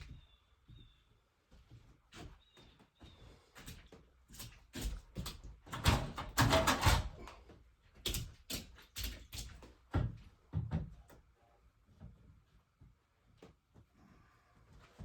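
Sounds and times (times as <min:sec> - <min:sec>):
irregular knocks and clatters: 0:03.8 - 0:07.4.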